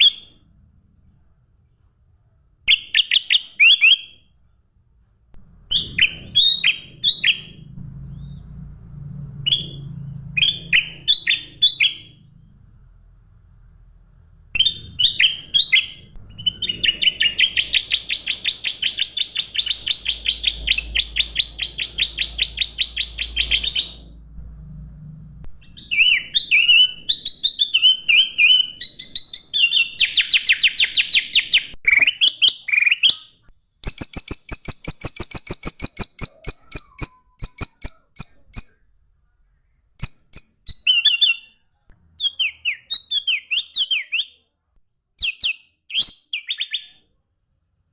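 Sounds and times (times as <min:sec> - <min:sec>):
songbird singing: 0:00.0 - 0:00.4, 0:02.7 - 0:04.6, 0:05.7 - 0:08.7, 0:09.4 - 0:12.6, 0:14.5 - 0:24.2, 0:25.6 - 0:38.9, 0:40.0 - 0:44.5.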